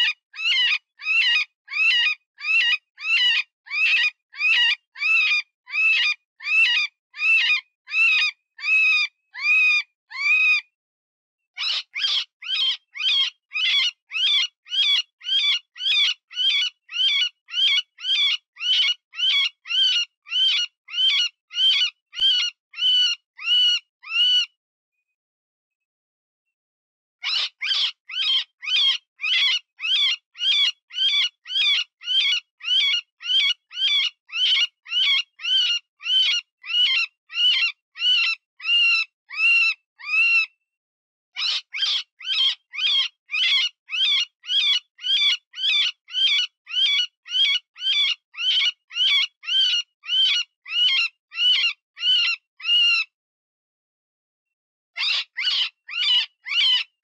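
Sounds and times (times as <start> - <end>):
rabbit squealing cries: 55.0 - 56.9.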